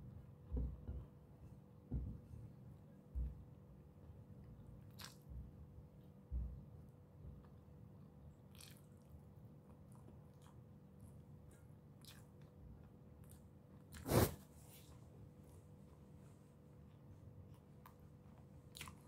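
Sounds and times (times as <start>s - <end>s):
knock: 0.5s - 1.1s, 1.9s - 2.2s
person chewing food: 4.6s - 5.5s, 8.5s - 14.0s, 17.4s - 19.0s.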